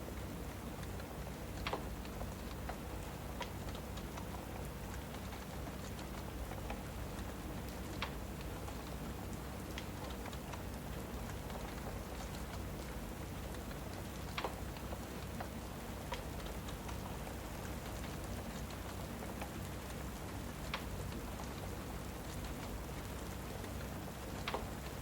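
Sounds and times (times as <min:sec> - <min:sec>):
steady rain: 0:00.0 - 0:25.0
fireplace crackling pops: 0:14.3 - 0:14.9.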